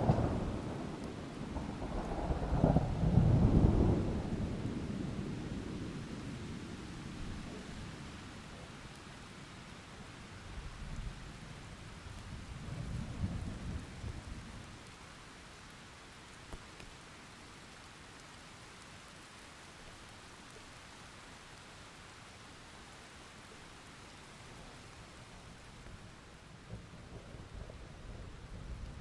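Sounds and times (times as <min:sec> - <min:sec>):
low roll of thunder: 0:00.0 - 0:08.2, 0:12.2 - 0:14.7, 0:26.5 - 0:29.0
steady rain falling: 0:00.0 - 0:29.0.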